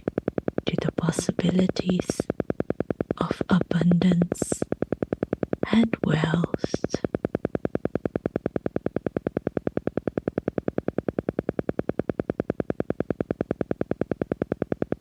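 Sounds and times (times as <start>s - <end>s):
rapid electronic pulse: 0.0s - 15.0s.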